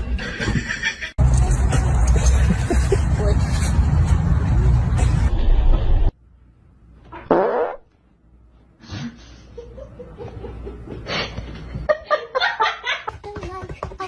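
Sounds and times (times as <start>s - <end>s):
person laughing: 2.3s - 3.4s.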